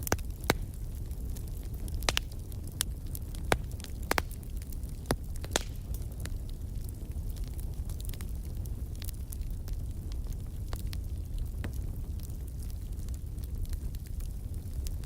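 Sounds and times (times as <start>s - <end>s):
firewood crackling and popping: 0.0s - 15.0s
low rumble of fire: 0.0s - 15.0s.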